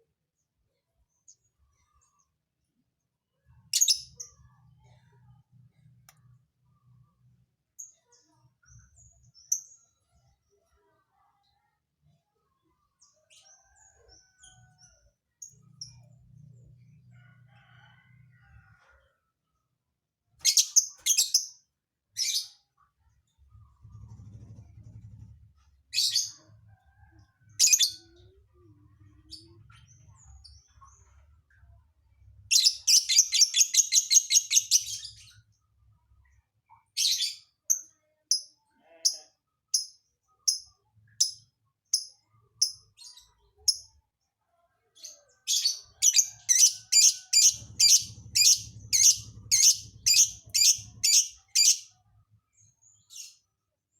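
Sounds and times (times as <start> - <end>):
bird chirping and trilling: 3.8 - 4.2, 20.5 - 21.5, 32.5 - 35.1, 45.5 - 51.9.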